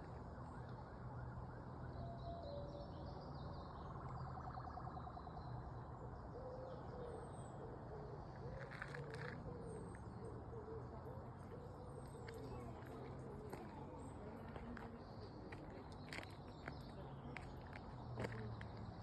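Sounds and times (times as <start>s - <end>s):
distant siren wailing: 0.0s - 6.3s
distant road traffic hum: 0.0s - 19.0s.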